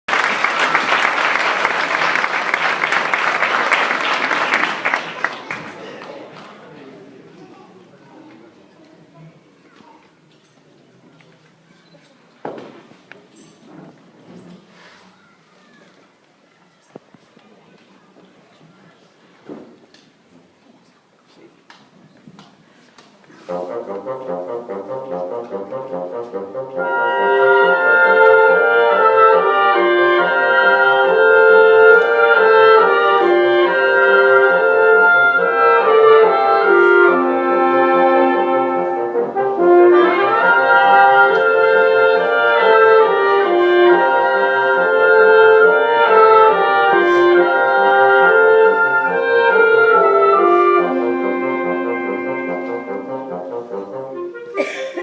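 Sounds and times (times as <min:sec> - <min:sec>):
instrumental ensemble chords: 0:23.5 - 0:55.0.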